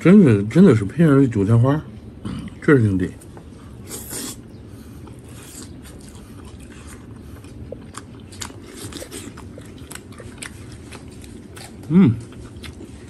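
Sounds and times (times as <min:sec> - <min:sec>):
person chewing food: 0:03.2 - 0:13.0.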